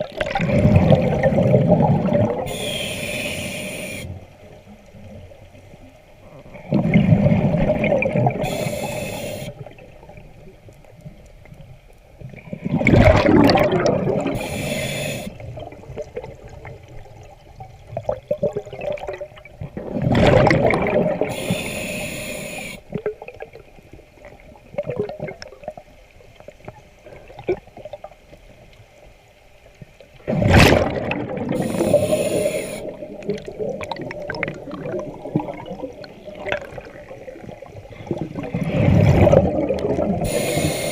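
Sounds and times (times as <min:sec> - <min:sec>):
exhaled bubbles rushing: 0:00.0 - 0:02.6, 0:06.5 - 0:08.5, 0:12.3 - 0:14.5, 0:15.4 - 0:21.4, 0:30.2 - 0:40.9
soft bubbling and gurgling: 0:00.0 - 0:40.9.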